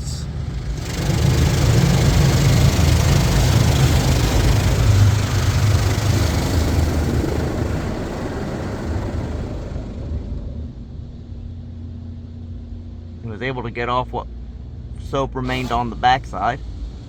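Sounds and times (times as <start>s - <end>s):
car wash machinery hum: 0.0s - 17.0s
high-pressure water spraying: 0.5s - 7.4s.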